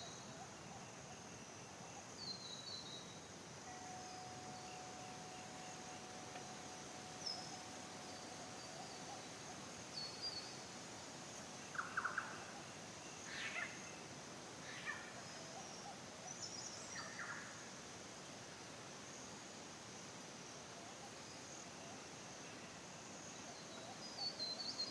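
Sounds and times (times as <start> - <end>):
insect drone: 0.0 - 24.9
bird calls and chirps: 1.4 - 14.0.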